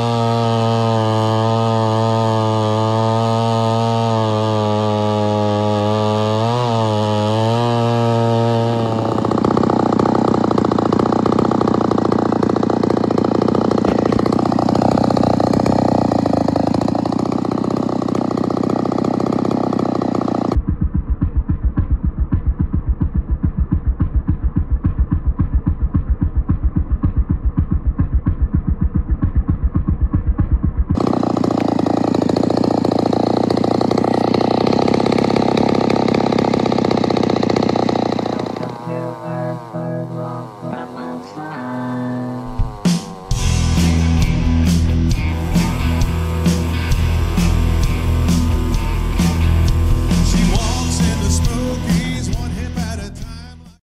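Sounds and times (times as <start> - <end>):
chainsaw running: 0.0 - 20.6, 30.9 - 53.8.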